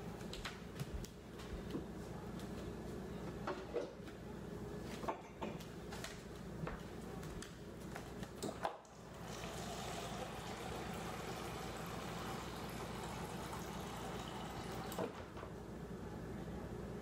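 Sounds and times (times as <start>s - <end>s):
water dispenser filling cup: 8.9s - 15.2s.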